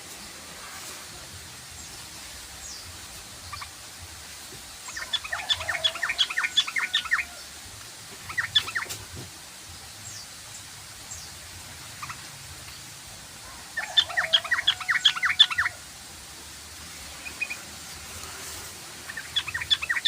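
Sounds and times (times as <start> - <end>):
steady background hiss: 0.0 - 20.0
bird chattering: 8.2 - 9.0, 19.1 - 20.0.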